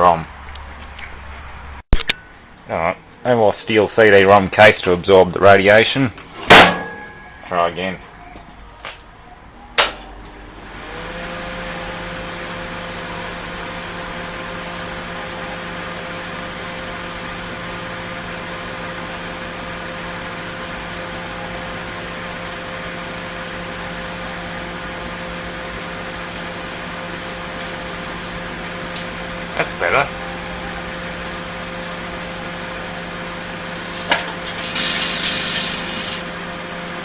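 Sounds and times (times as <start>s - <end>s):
microwave oven humming: 5.9s - 37.0s
faint high tone: 6.9s - 10.4s.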